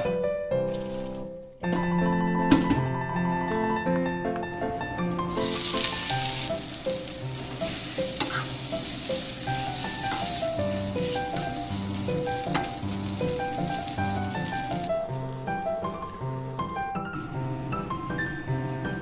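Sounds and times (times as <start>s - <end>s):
fish cake sizzling in hot oil: 5.3s - 17.0s
wooden spatula stirring: 5.5s - 16.8s.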